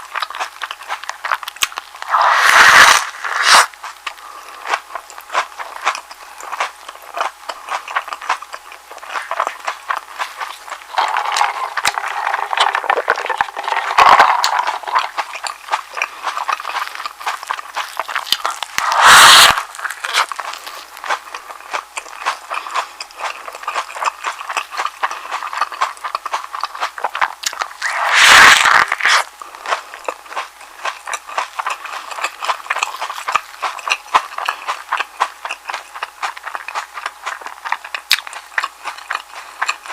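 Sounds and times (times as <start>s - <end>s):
wet chewing mouth sounds: 0.0s - 39.9s
loud bites into sandwich: 2.0s - 3.8s, 18.4s - 20.3s, 27.6s - 29.3s.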